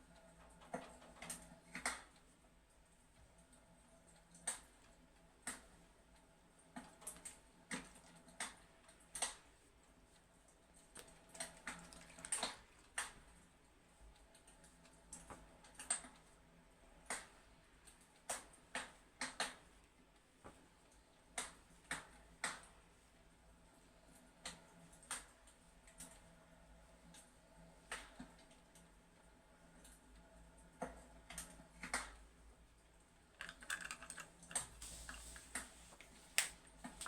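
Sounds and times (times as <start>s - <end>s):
fireplace crackling: 33.3s - 37.0s.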